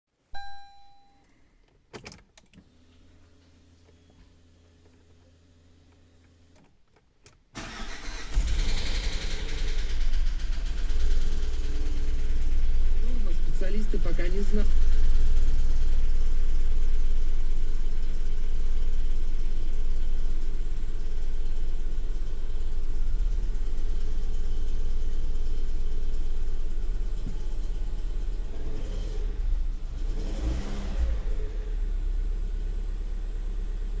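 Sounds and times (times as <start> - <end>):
car engine low rumble: 7.6 - 34.0.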